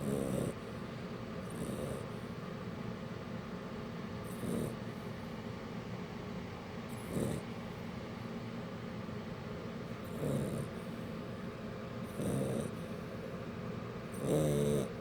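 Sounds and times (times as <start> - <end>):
puppy snoring: 0.0 - 0.8, 1.4 - 2.4, 4.2 - 4.9, 6.9 - 7.6, 10.0 - 11.2, 12.0 - 13.2, 14.1 - 15.0
steady low hum: 0.0 - 15.0.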